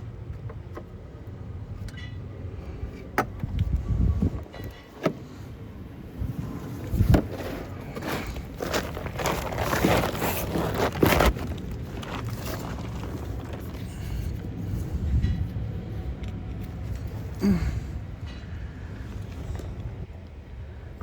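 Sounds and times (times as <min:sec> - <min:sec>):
scraping and rustling: 0:06.4 - 0:15.6.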